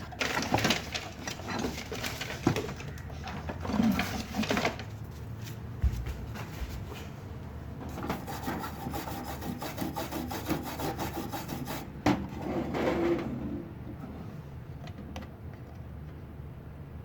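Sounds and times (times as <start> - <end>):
scratchy scraping strokes: 8.1 - 11.9.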